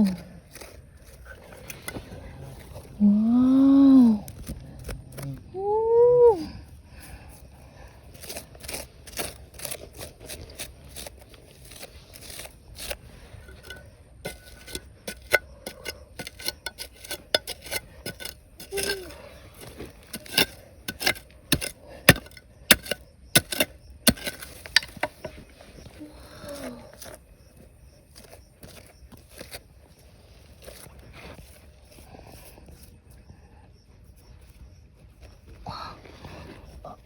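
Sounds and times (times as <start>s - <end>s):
stones and gravel clinking: 8.2s - 27.3s.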